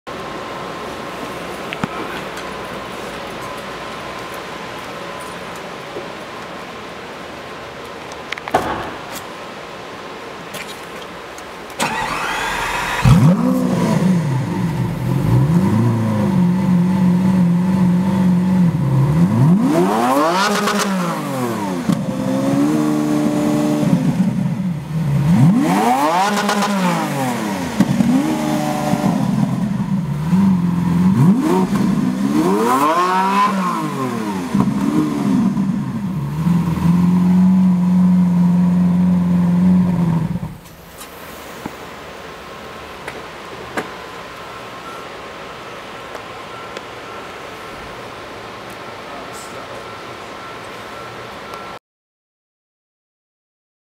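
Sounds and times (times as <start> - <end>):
car engine revving and idling: 11.8 - 40.7.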